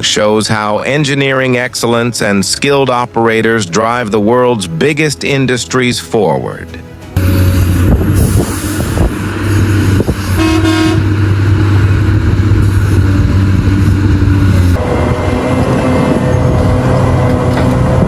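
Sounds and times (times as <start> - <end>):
heavy diesel machinery running: 6.8 - 18.0
short horn toot: 10.2 - 11.2.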